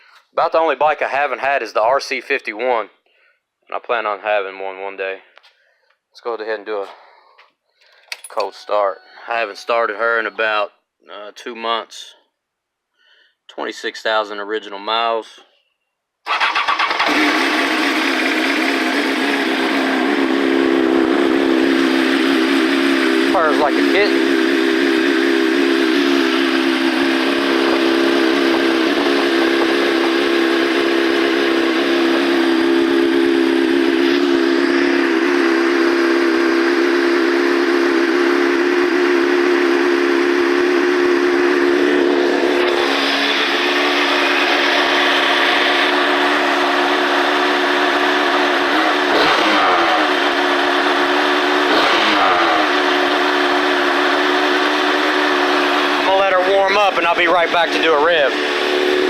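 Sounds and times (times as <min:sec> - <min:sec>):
motorcycle engine idling: 0:17.0 - 0:59.0.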